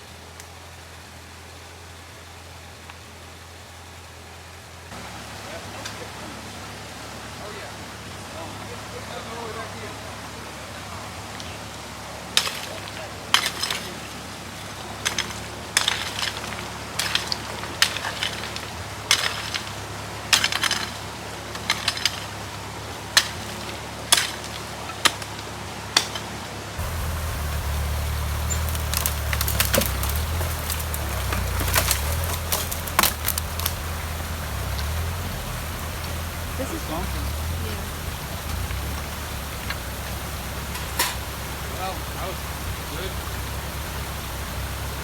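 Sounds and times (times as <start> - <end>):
shovels scraping rocks and gravel: 12.4 - 14.2, 14.8 - 22.3, 26.0 - 43.6
steady low rumble: 26.8 - 45.0.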